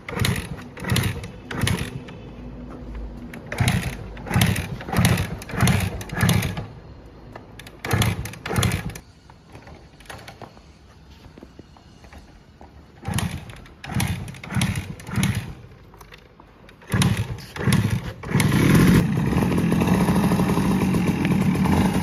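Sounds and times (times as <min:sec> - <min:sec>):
motorcycle engine revving: 0:00.0 - 0:09.0, 0:13.0 - 0:16.0, 0:16.8 - 0:22.0
motorcycle engine idling: 0:00.0 - 0:10.7, 0:12.0 - 0:22.0.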